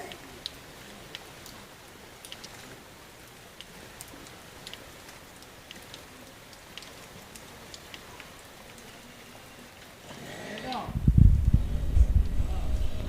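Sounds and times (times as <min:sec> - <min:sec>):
rain hissing: 0:00.0 - 0:13.0
raindrops ticking on surfaces: 0:00.0 - 0:13.0.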